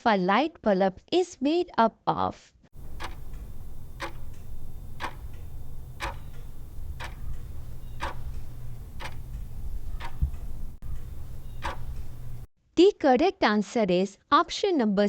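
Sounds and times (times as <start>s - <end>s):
clock ticking: 2.8s - 12.5s
steady low hum: 2.8s - 12.5s.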